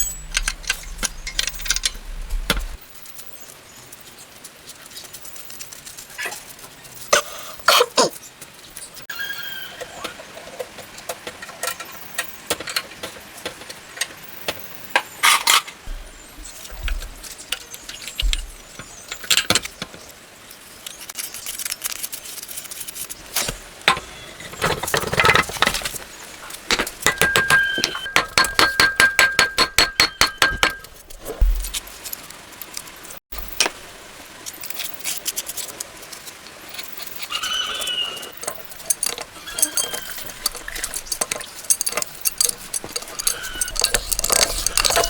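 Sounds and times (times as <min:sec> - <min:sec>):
metal tools clinking and scraping: 0:00.0 - 0:02.8, 0:14.9 - 0:19.8, 0:23.4 - 0:33.7, 0:36.1 - 0:45.0.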